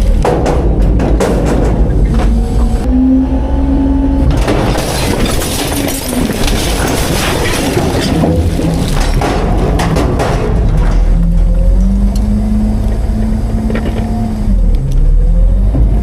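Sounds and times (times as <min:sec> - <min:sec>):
garbage truck diesel engine rumbling: 0:00.0 - 0:16.0
garbage being compacted crackling: 0:04.2 - 0:14.6.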